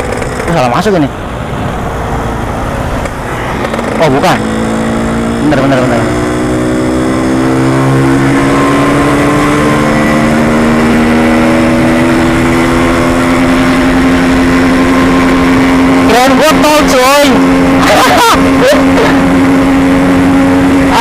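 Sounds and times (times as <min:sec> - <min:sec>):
two-stroke motorcycle engine: 0:00.0 - 0:01.2, 0:03.0 - 0:21.0.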